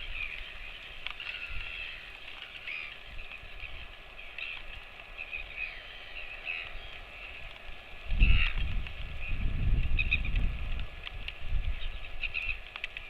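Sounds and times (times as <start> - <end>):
birds chirping: 0.0 - 10.6, 11.5 - 13.0.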